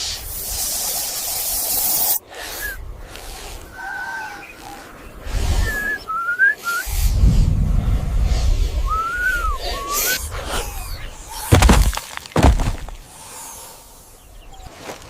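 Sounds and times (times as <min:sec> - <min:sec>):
whistled bird calls: 0:02.4 - 0:07.0, 0:08.8 - 0:11.5.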